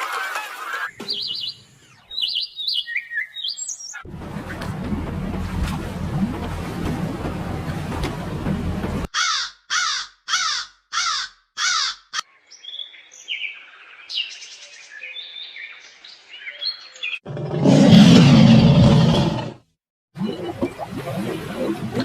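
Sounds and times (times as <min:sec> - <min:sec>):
bird chirps and whistles: 0:01.1 - 0:04.0
bird cawing: 0:09.1 - 0:12.2.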